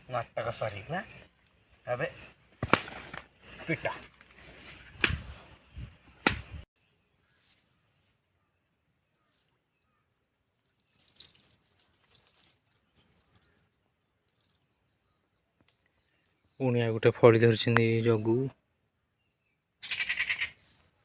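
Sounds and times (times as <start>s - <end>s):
faint bird chirps: 6.8s - 20.8s
rustling and handling noise: 10.6s - 12.9s.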